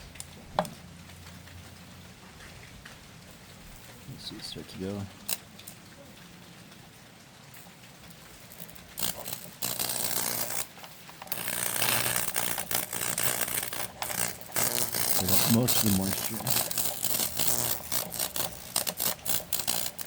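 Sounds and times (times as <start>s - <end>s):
electric arc buzzing and crackling: 3.8s - 6.0s, 7.4s - 20.0s.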